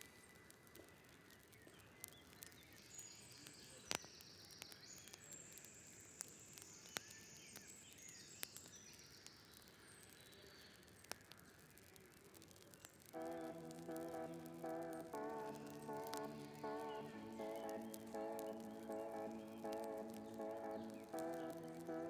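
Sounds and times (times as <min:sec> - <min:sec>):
sharp clicks: 0:12.4 - 0:22.0
high wavering trill: 0:13.2 - 0:22.0.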